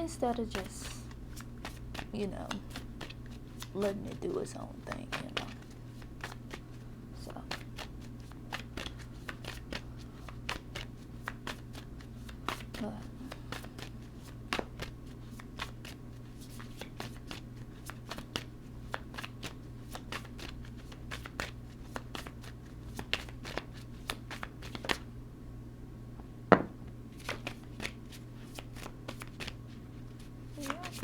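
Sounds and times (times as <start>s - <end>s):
faint low hum: 0.0s - 31.0s
cards shuffling and clicking: 0.2s - 25.1s, 27.1s - 31.0s
card snapping: 30.6s - 31.0s.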